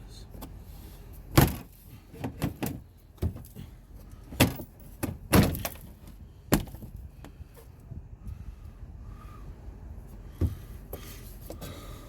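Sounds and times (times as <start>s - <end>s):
loud knocks and thuds: 1.3s - 3.4s, 4.4s - 5.8s, 6.5s - 6.9s.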